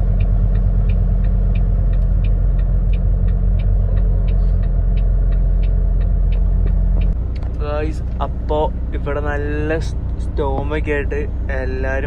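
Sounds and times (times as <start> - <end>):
light regular ticking: 0.0 - 8.9
diesel truck engine rumble: 0.0 - 12.0.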